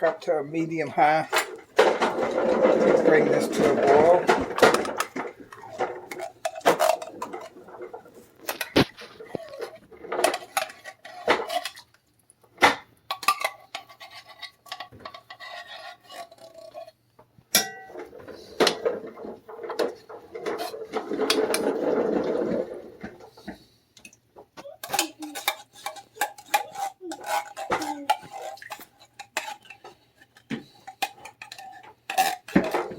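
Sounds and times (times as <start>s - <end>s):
sharp knocks of cookware: 17.5s - 18.1s.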